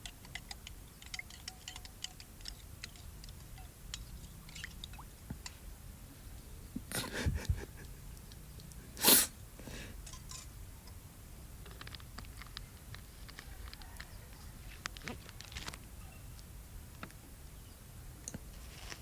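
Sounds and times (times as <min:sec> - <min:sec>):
utensils clicking and knocking: 0:00.0 - 0:05.0
person sneezing: 0:09.0 - 0:09.4.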